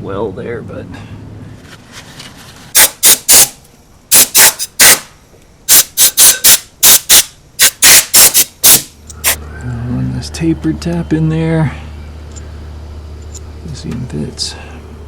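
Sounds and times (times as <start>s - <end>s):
compressed air blasts: 2.7s - 9.4s.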